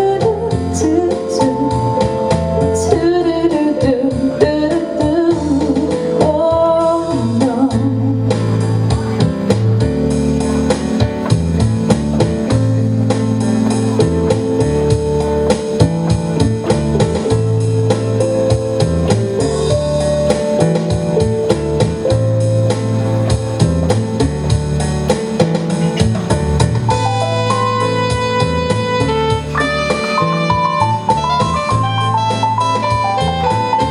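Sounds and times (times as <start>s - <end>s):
drum kit beat: 0.0s - 33.9s
guitar: 0.0s - 33.9s
piano: 0.0s - 33.9s.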